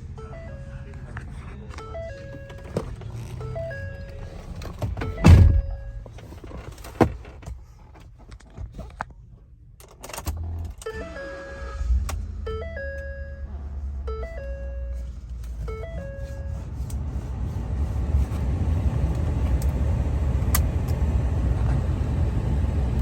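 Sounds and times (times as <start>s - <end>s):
truck engine starting and idling: 0.0s - 6.5s, 9.8s - 23.0s
heavy thump: 4.5s - 6.1s
repeating electronic tones: 10.9s - 13.5s.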